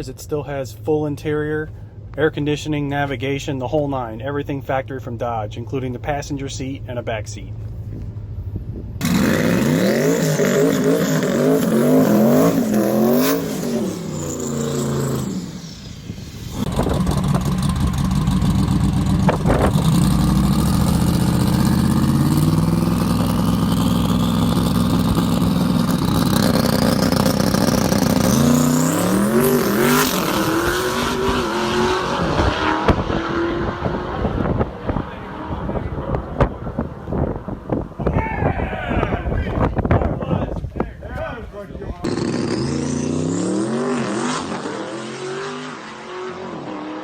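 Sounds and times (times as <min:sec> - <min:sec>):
high turbo whine: 0:05.6 - 0:38.0
car engine accelerating: 0:09.0 - 0:37.8, 0:42.0 - 0:47.0.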